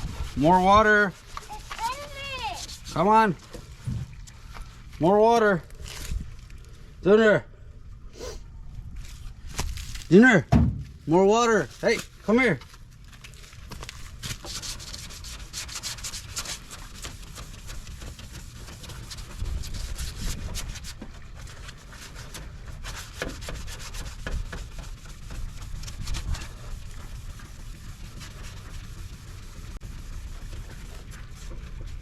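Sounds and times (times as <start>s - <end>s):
sandpaper rubbing on plastic: 0.0s - 3.1s, 14.1s - 32.0s.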